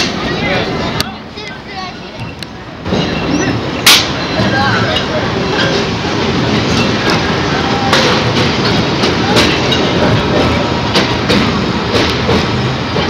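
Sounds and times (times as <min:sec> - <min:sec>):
train rumbling on track: 0:00.0 - 0:13.0
wheel clacks over rail joints: 0:02.2 - 0:13.0.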